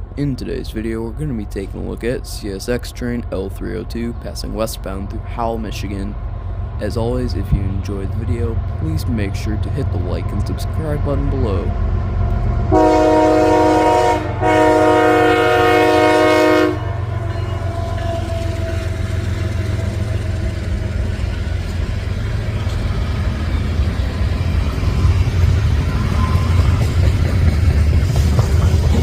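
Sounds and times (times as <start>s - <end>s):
freight train rumbling and rattling: 0.0s - 29.0s
locomotive air horn: 12.7s - 19.1s.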